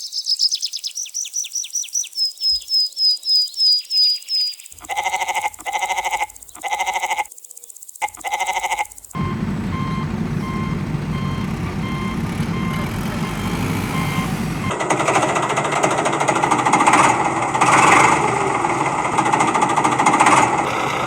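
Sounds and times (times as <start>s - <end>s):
truck reversing beeper: 9.2s - 15.3s
engine noise: 9.2s - 21.0s.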